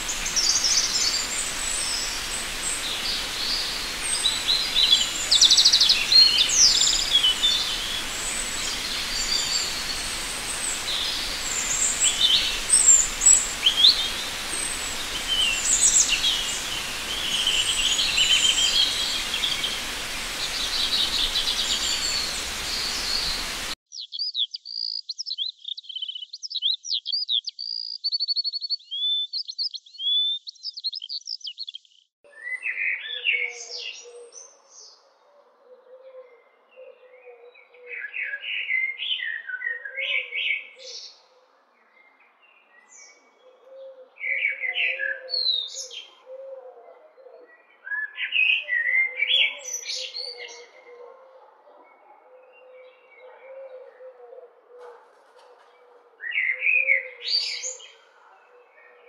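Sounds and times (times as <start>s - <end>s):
loud hiss: 0.0s - 23.8s
birds chirping and trilling: 0.0s - 28.0s.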